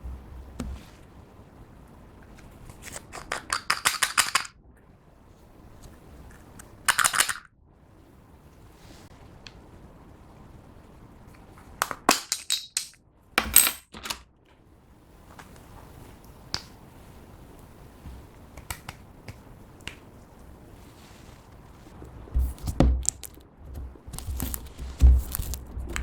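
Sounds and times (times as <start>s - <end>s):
crunch: 23.1s - 26.0s.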